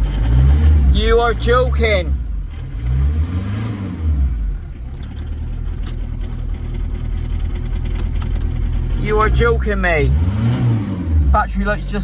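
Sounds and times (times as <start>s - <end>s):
diesel engine idling: 4.0s - 12.0s.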